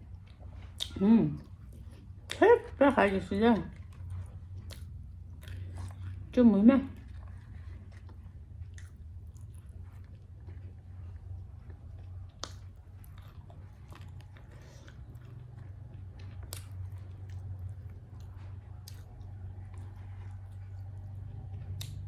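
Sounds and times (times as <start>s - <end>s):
person chewing food: 0.0s - 22.0s
mouth smacks and clicks: 12.3s - 12.8s.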